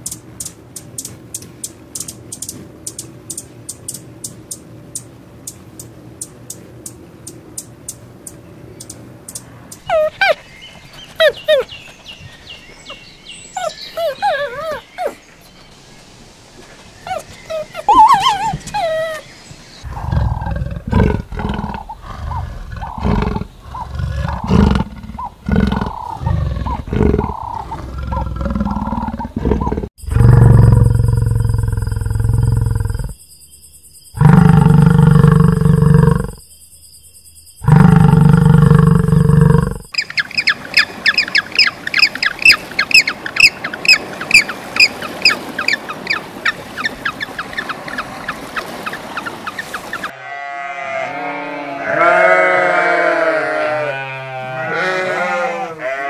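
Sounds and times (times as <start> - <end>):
short animal calls: 17.1 - 19.2.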